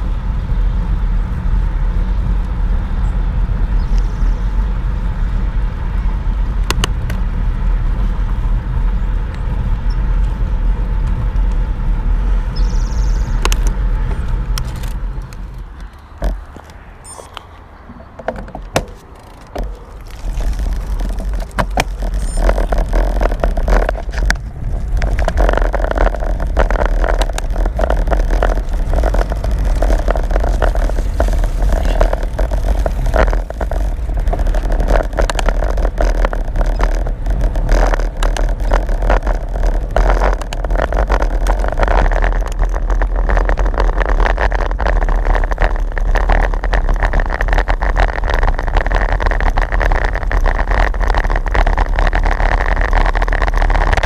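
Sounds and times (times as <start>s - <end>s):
wind rushing over microphone: 0.0s - 54.0s
small clicks and rattles: 13.4s - 54.0s.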